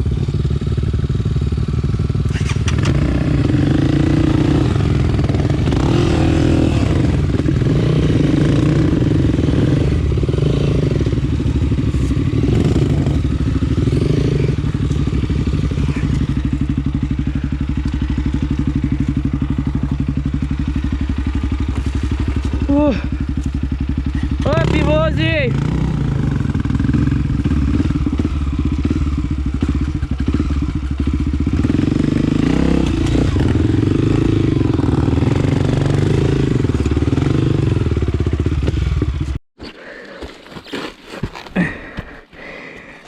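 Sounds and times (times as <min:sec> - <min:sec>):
motorcycle engine revving and idling: 0:00.0 - 0:39.4.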